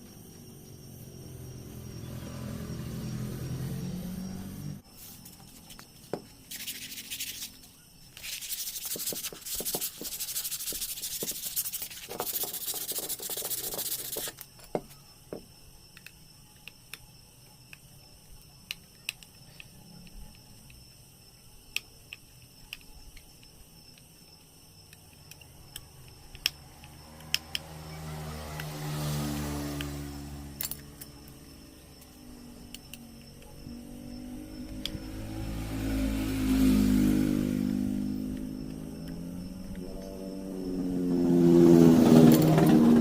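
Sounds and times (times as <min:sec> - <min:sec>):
rubbing on a hard surface: 0:05.0 - 0:14.4.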